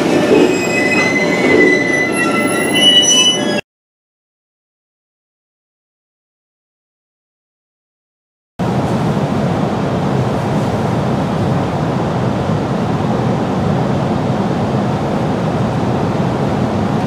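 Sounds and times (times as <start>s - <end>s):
train cabin rumble and hiss: 8.6s - 17.0s.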